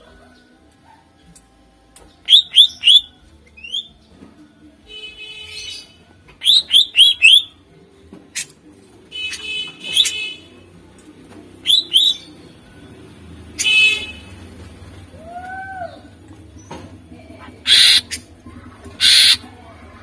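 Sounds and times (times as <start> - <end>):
bird buzzy chattering: 17.6 - 19.5.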